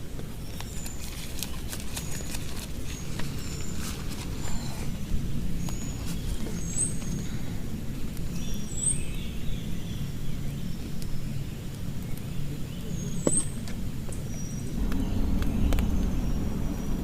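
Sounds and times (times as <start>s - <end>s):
heavy rain: 14.7s - 17.0s.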